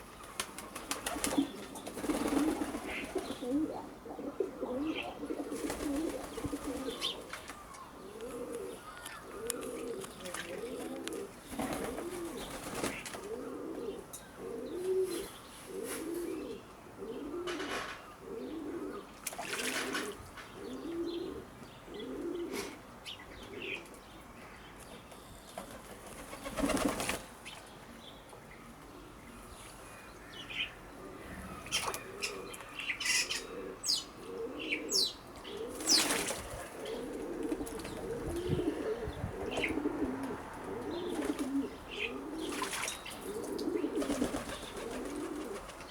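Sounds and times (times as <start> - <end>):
doves cooing: 0.0 - 22.8, 30.3 - 45.9
wings flapping: 0.3 - 3.3, 11.5 - 13.3, 25.6 - 27.3, 35.7 - 36.7, 44.0 - 45.9.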